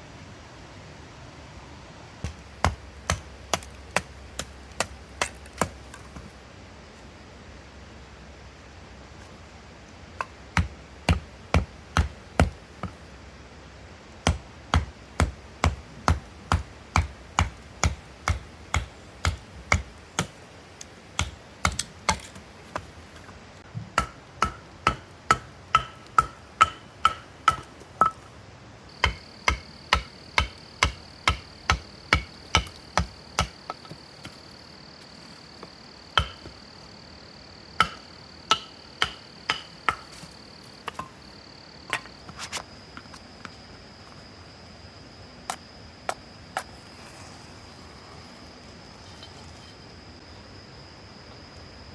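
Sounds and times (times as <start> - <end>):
blade striking wood: 2.2 - 6.0, 14.2 - 20.4, 21.2 - 22.9, 24.0 - 28.2, 29.0 - 34.4, 36.2 - 36.5, 37.8 - 40.3.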